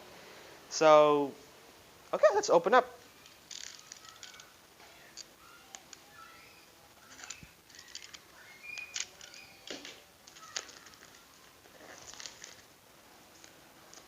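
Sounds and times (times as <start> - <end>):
packaging rustling: 3.5 - 4.5, 7.0 - 12.7
short squeaks: 6.2 - 9.8.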